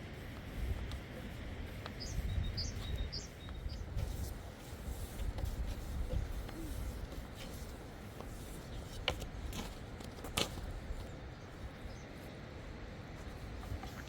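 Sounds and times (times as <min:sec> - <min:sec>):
bird chirping: 0:02.0 - 0:03.9.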